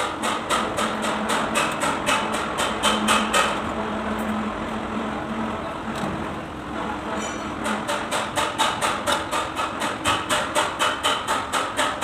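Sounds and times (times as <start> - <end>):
sharp knocks: 7.6 - 12.0.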